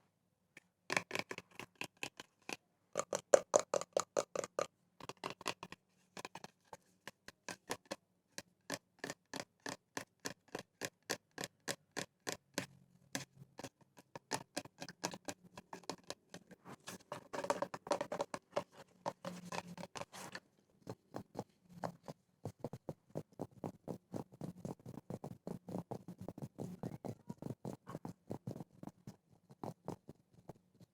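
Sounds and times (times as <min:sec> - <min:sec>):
fingers tapping small objects: 0:00.6 - 0:16.5, 0:17.2 - 0:20.3.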